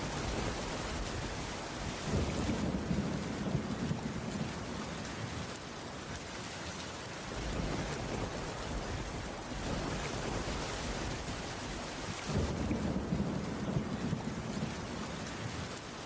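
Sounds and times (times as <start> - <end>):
low thunder rolling: 0.0 - 4.8, 12.3 - 15.0
rain on a wooden roof: 0.0 - 16.0.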